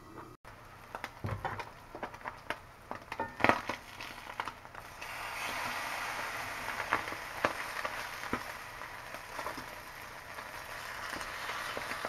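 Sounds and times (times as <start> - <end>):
meat sizzling in a skillet: 2.9 - 12.0.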